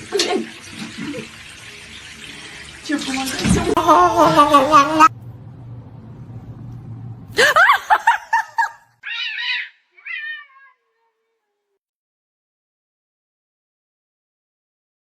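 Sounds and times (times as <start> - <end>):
cat meowing: 9.0 - 11.8.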